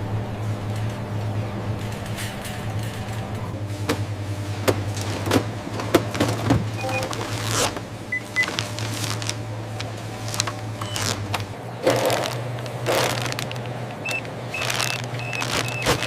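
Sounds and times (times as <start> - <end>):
machinery humming: 0.0 - 16.0
machine clicks and clanks: 1.8 - 16.0
short high beeps: 6.8 - 7.2.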